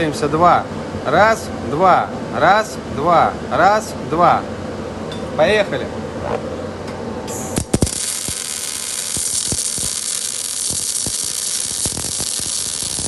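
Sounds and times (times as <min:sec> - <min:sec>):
sharp arc pops: 0:07.3 - 0:13.0
welding arc crackling: 0:07.3 - 0:13.0.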